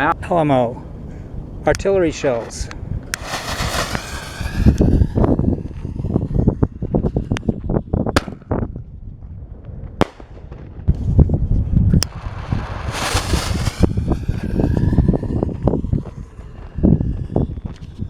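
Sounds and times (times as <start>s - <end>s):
firework shell bangs: 3.2s - 4.8s
short hissing rush: 3.2s - 5.4s, 12.1s - 14.7s.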